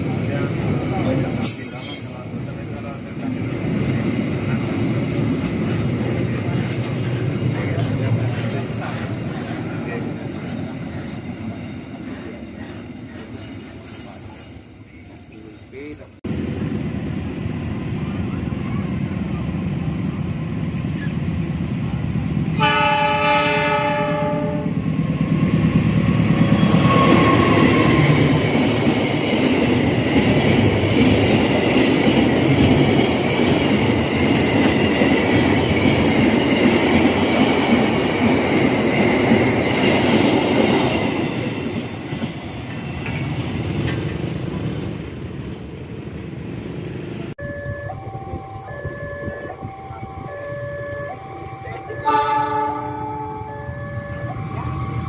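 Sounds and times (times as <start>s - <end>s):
train rumble and wheel clatter: 0.0s - 55.0s
locomotive horn: 22.6s - 24.8s, 47.4s - 54.6s
high metallic wheel squeal: 26.6s - 28.2s.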